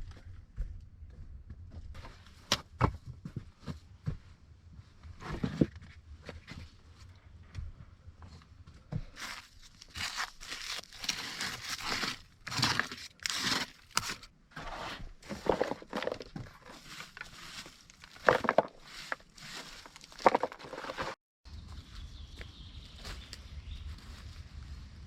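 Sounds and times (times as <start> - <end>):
rustling and crinkling handling: 8.2 - 21.2.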